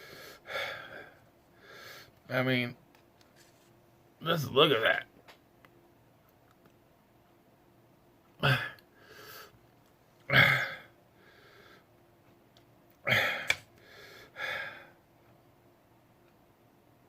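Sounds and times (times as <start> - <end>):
man gasping and exhaling: 13.1 - 14.9.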